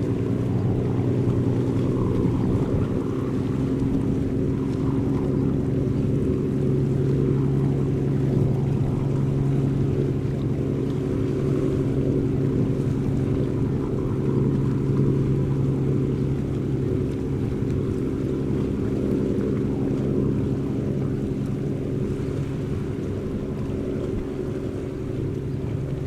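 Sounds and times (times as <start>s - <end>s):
boat diesel engine droning: 0.0s - 26.0s.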